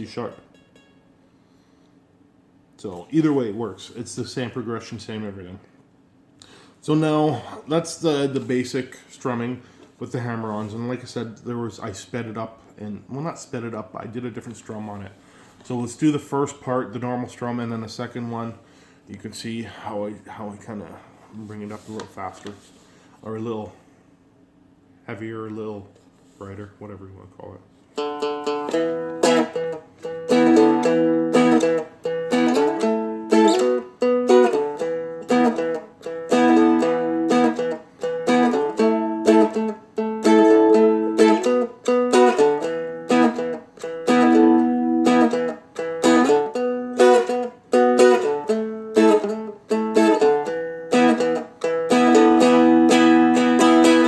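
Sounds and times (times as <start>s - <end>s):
strumstick strumming blues chords: 0.0s - 1.1s, 27.9s - 54.0s.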